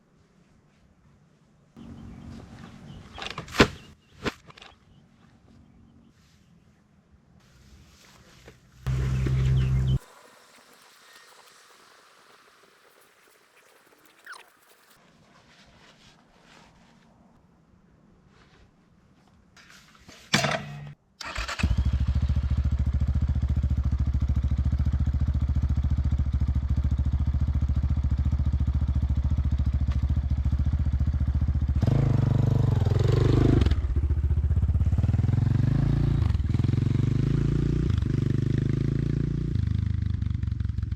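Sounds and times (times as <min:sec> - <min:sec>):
motorcycle engine starting and revving: 0:08.8 - 0:10.1, 0:20.5 - 0:40.9.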